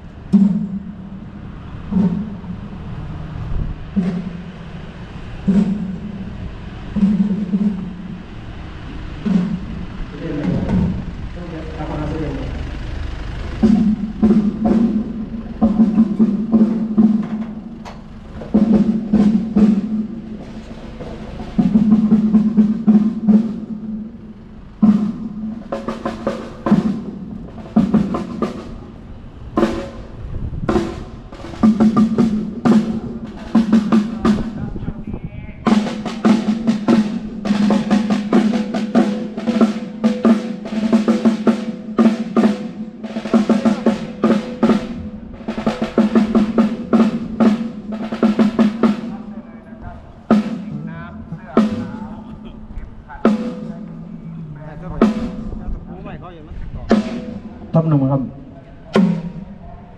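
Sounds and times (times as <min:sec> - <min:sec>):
ringing drum hits: 0:01.9 - 0:02.8, 0:03.9 - 0:04.7, 0:05.4 - 0:08.2, 0:50.3 - 0:52.5
snare drum rolls: 0:01.9 - 0:02.8, 0:03.9 - 0:08.4, 0:09.2 - 0:11.0, 0:13.6 - 0:24.1, 0:24.8 - 0:28.9, 0:29.6 - 0:34.8, 0:35.6 - 0:54.2, 0:56.8 - 0:57.9, 0:58.9 - 0:59.6.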